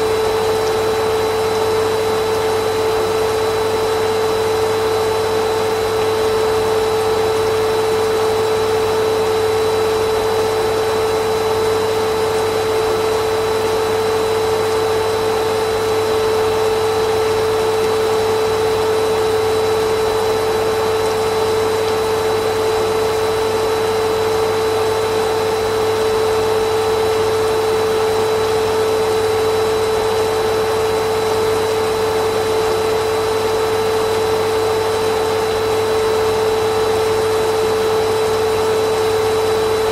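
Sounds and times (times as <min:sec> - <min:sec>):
vacuum cleaner motor: 0:00.0 - 0:39.9.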